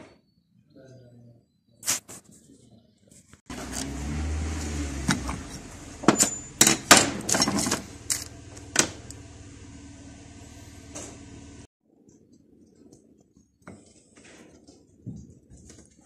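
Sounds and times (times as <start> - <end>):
low hum: 7.3 - 11.7.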